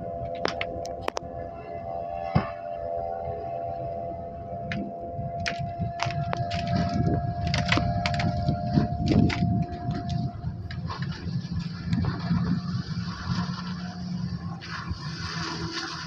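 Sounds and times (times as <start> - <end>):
thin steady whine: 0.0 - 16.0
outboard engine running: 2.6 - 16.0.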